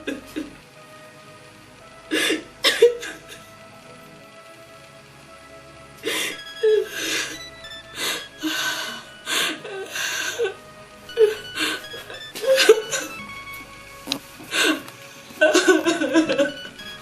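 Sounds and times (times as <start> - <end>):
soft background music: 0.0 - 17.0
woman sobbing and gasping: 2.1 - 3.4, 6.0 - 13.2.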